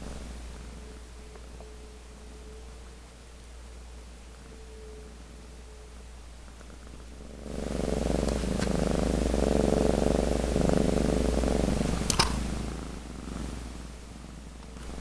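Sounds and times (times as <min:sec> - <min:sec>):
cat purring: 0:00.0 - 0:15.0
sharp click: 0:12.1 - 0:12.4.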